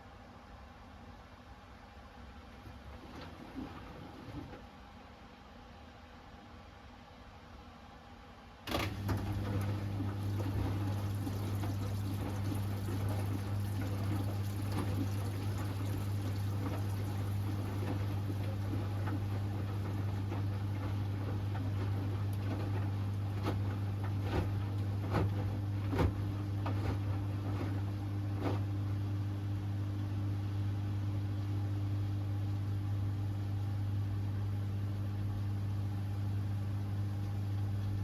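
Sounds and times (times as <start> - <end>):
washing machine electric hum: 0.0 - 38.0
water running and gurgling: 9.0 - 20.9.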